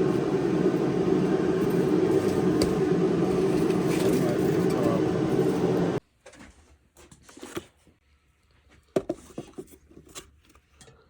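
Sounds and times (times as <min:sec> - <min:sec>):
loud steady sound: 0:00.0 - 0:06.0.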